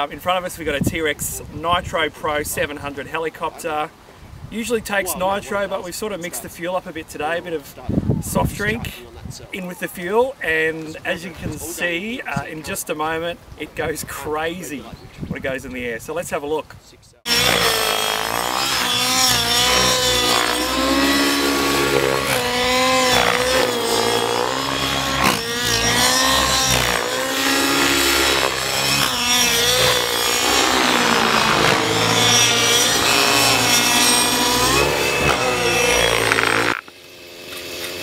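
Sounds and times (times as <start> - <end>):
model helicopter engine buzzing: 17.3 - 38.0.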